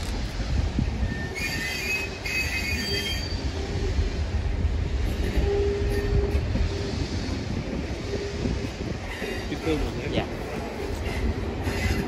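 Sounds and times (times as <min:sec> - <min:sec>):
railway carriages rumbling: 0:00.0 - 0:12.0
wheel flange squeal: 0:01.0 - 0:03.6.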